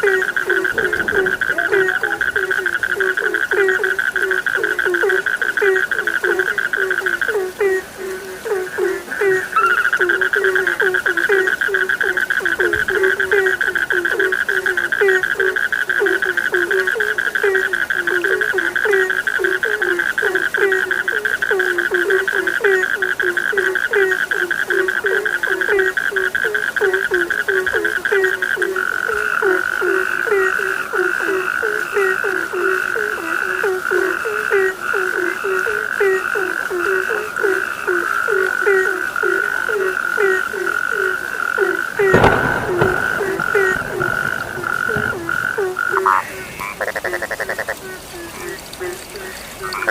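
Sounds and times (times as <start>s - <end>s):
high-pitched frog trill: 0.0s - 7.9s, 8.5s - 49.9s
frogs croaking: 0.0s - 49.9s.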